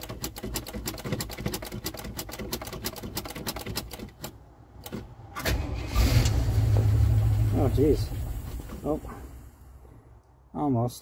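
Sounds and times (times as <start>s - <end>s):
engine starter cranking: 0.0s - 7.5s.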